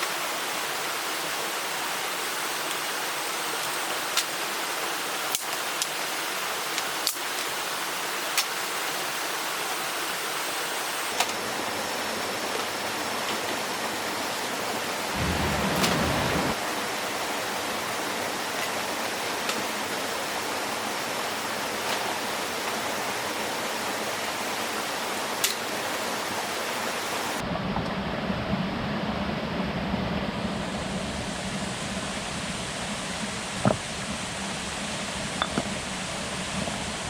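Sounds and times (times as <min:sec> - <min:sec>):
rushing water: 0:00.0 - 0:27.4
low hum: 0:15.0 - 0:16.6.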